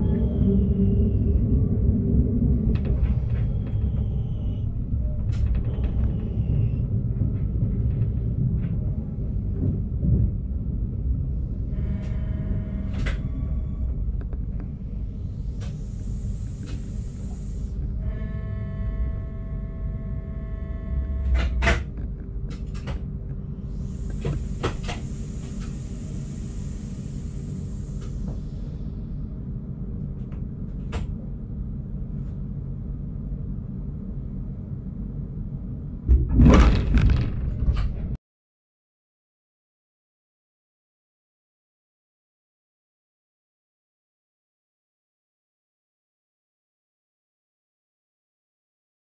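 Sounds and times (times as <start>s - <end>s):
train low rumble: 0.0s - 38.2s
air hiss: 23.8s - 28.2s.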